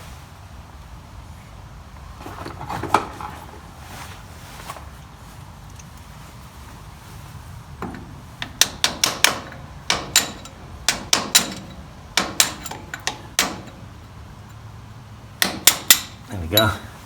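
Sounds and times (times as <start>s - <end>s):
metal striking metal pin: 7.8s - 14.6s, 15.4s - 16.7s.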